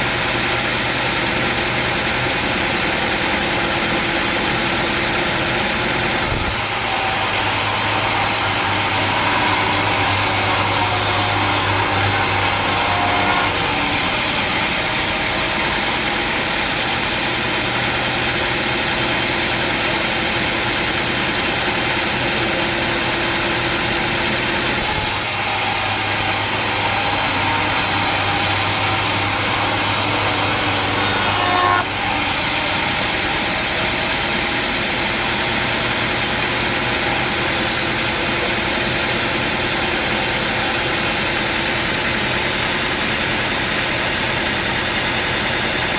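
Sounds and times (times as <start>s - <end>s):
sawmill machinery running: 0.0s - 45.9s.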